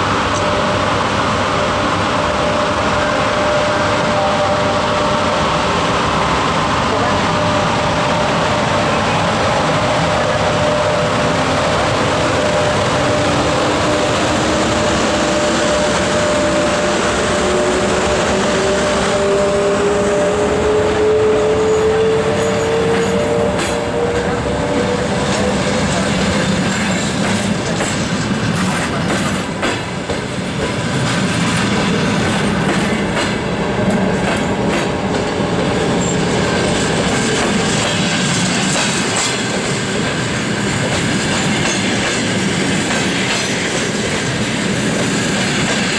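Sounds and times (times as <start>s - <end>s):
train whine rising in pitch: 0.0s - 27.4s
train wheels clicking over rail joints: 22.0s - 45.9s.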